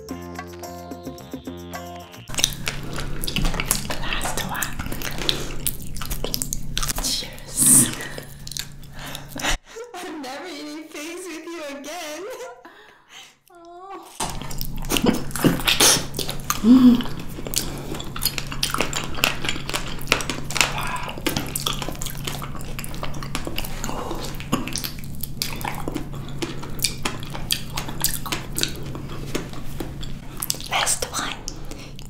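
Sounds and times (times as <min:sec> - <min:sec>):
biting and chewing fruit: 0:02.3 - 0:09.6, 0:14.0 - 0:32.0
person humming: 0:13.5 - 0:14.2, 0:16.6 - 0:17.2.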